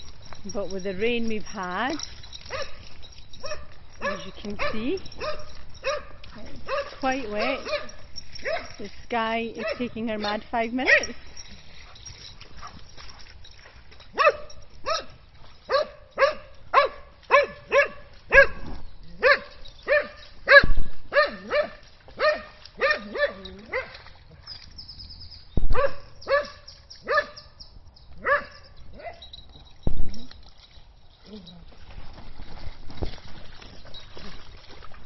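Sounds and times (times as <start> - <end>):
dog barking: 2.5 - 2.8, 3.4 - 8.8, 14.2 - 15.1, 15.7 - 24.0, 25.8 - 27.4, 28.2 - 29.2.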